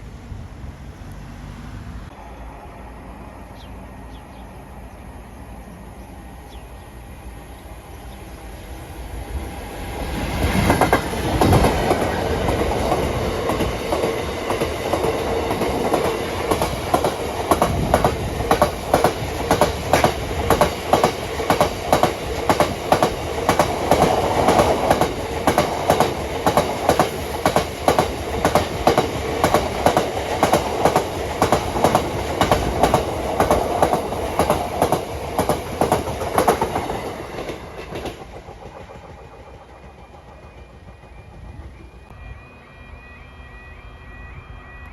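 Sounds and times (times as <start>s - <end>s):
train wheels clacking on rails: 10.2s - 42.1s.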